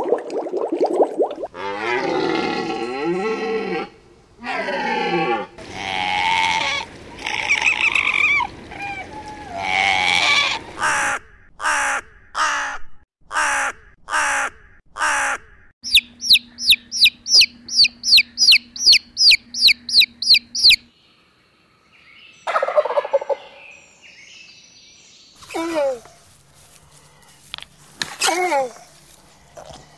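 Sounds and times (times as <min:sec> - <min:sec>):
poultry call: 0:04.4 - 0:20.8
deer calling: 0:15.0 - 0:20.8
sharp high animal calls: 0:15.8 - 0:20.8.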